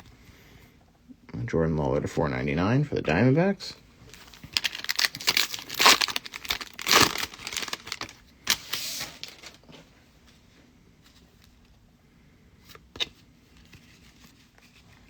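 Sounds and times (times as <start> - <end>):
wrapper crinkling and tearing: 4.1 - 9.6.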